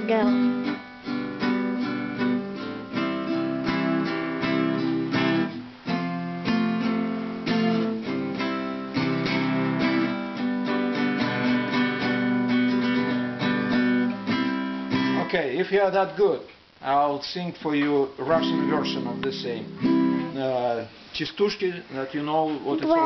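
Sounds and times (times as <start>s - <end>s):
acoustic guitar strumming chords: 0.0s - 16.3s, 17.8s - 20.7s, 22.8s - 23.0s.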